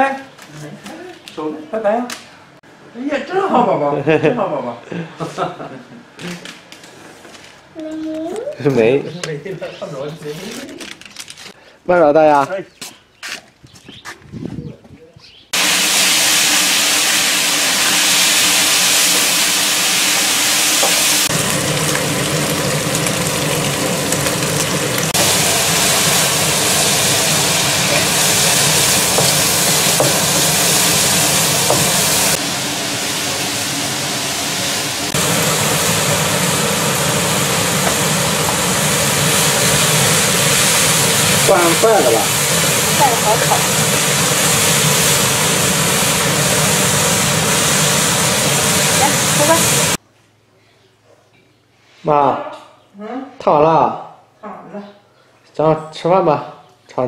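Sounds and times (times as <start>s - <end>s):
hot oil sizzling in a wok: 15.6s - 50.0s.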